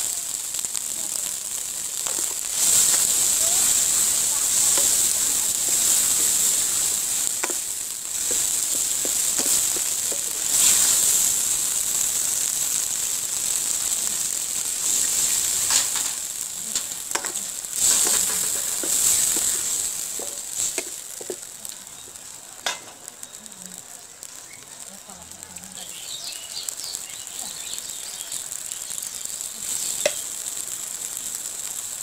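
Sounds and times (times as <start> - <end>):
vegetables sizzling in hot oil: 0.0 - 32.0
water pouring into a pan: 1.4 - 23.1
wooden spatula scraping a pan: 2.0 - 11.4, 16.8 - 21.8.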